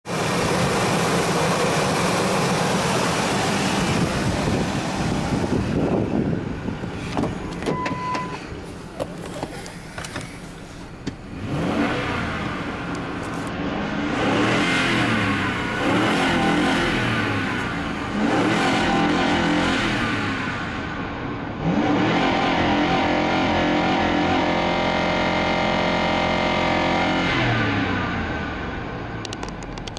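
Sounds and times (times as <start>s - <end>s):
car engine revving: 0.2s - 29.4s
short electronic beep: 7.7s - 8.5s.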